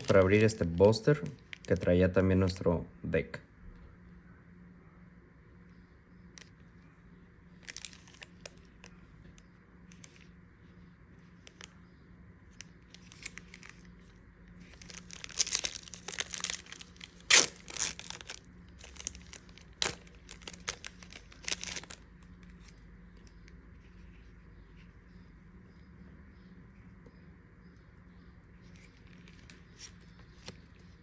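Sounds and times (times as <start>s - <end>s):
foil wrapper tearing and crinkling: 0.0s - 1.8s, 7.6s - 8.9s, 12.9s - 14.0s, 14.6s - 22.8s.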